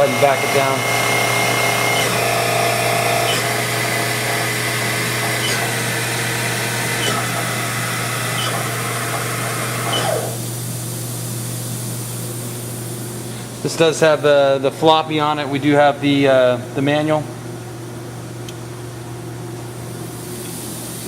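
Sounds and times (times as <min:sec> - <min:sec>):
machine spindle whine slowing: 0:00.0 - 0:10.4.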